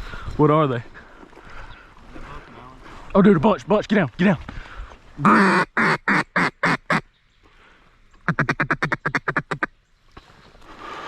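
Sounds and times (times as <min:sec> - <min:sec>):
duck quacking: 0:05.2 - 0:07.0, 0:08.2 - 0:09.7.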